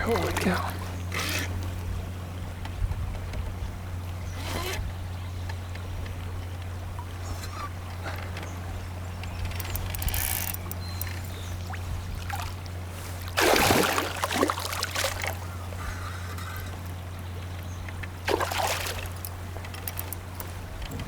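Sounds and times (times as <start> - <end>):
fish splashing: 9.6 - 16.8, 18.2 - 20.6
water trickling and dripping: 16.5 - 20.5.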